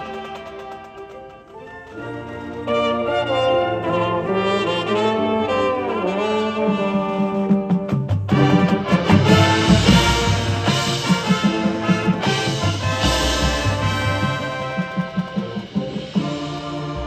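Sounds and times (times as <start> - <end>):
brass holding sustained chords: 0.0 - 7.5, 8.3 - 17.0
drum hits: 7.6 - 17.0
cymbal crashes: 8.3 - 17.0.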